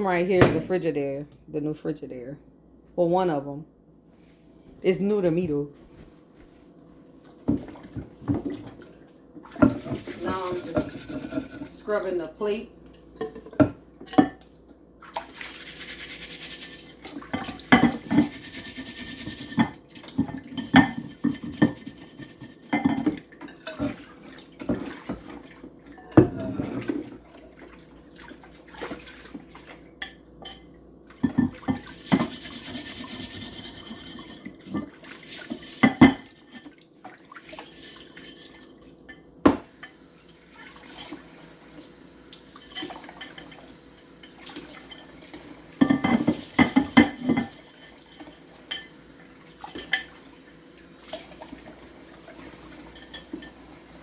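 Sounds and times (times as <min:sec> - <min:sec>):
glass plate scrubbed in sink: 0:09.6 - 0:11.9, 0:15.2 - 0:19.8, 0:20.6 - 0:23.0, 0:31.6 - 0:36.6, 0:37.5 - 0:38.7, 0:45.8 - 0:48.8.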